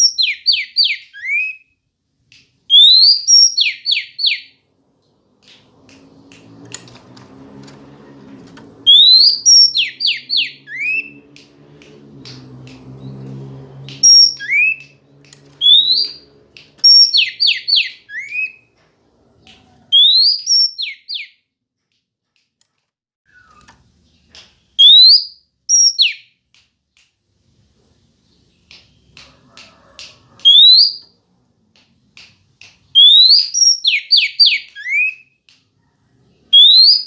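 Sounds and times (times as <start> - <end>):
low hum: 4.5 - 17.3
bird whistling and ticking: 15.6 - 16.2, 23.3 - 23.7, 24.8 - 26.2, 33.0 - 35.2.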